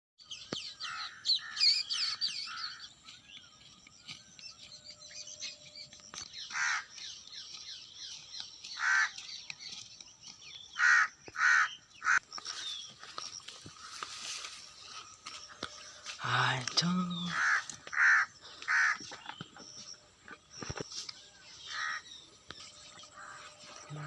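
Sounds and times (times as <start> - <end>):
small birds chirping: 0.2 - 24.0
crows cawing: 0.8 - 2.9, 6.5 - 7.0, 8.7 - 9.2, 10.7 - 12.2, 17.3 - 19.2, 21.6 - 22.1, 23.1 - 23.6.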